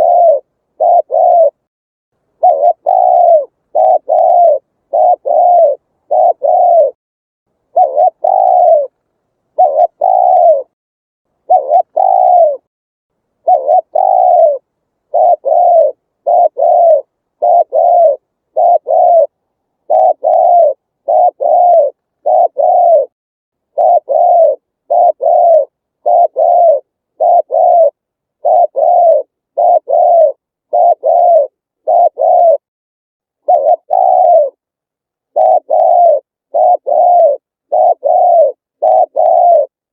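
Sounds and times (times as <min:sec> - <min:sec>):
dove cooing: 0:00.0 - 0:01.7, 0:02.4 - 0:07.0, 0:07.6 - 0:10.8, 0:11.4 - 0:12.7, 0:13.4 - 0:32.7, 0:33.4 - 0:34.6, 0:35.3 - 0:39.8.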